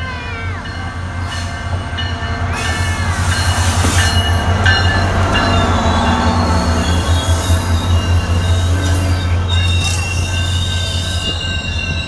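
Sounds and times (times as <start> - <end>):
diesel locomotive engine rumble: 0.0 - 12.0.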